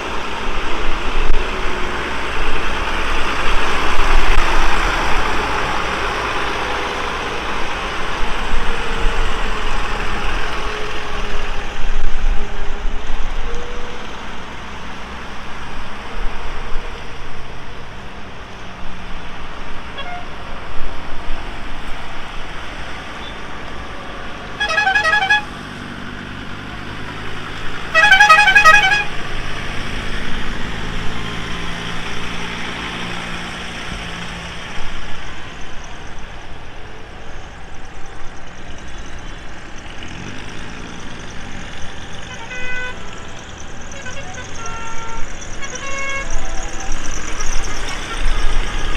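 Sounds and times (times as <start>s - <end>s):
tractor engines running: 0.0s - 48.9s
horn blasts: 20.0s - 20.4s, 24.5s - 25.6s, 27.9s - 29.3s, 42.2s - 43.2s, 43.8s - 46.9s.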